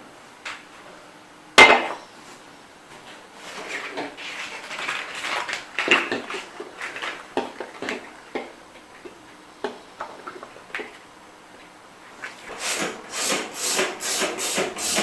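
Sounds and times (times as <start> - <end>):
hard objects knocking and clicking: 12.6 - 15.0.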